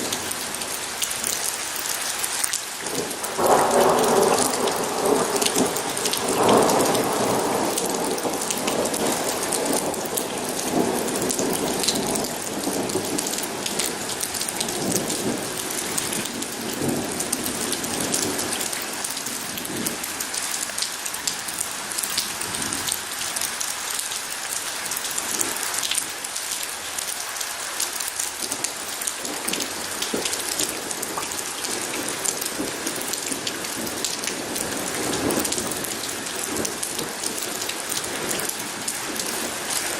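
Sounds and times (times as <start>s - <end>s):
heavy rain pattering: 0.0s - 39.9s
thunder rumble: 3.0s - 20.0s.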